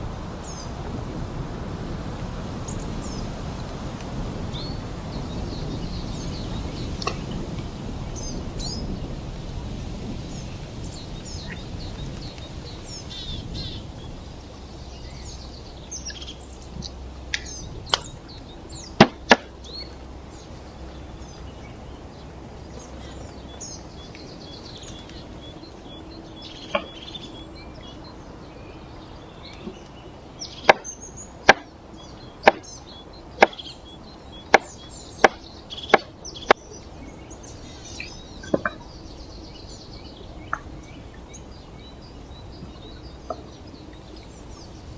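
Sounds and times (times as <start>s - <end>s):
blade chopping wood: 30.7s - 30.9s, 31.5s - 31.7s.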